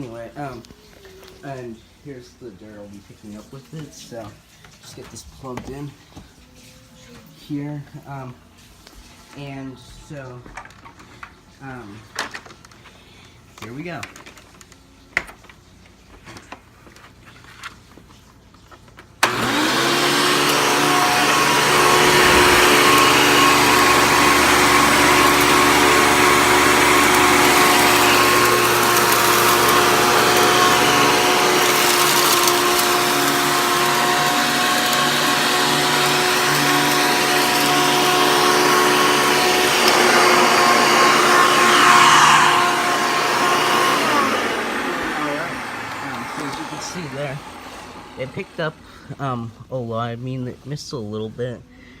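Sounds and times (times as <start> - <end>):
vacuum cleaner running: 19.2 - 49.4.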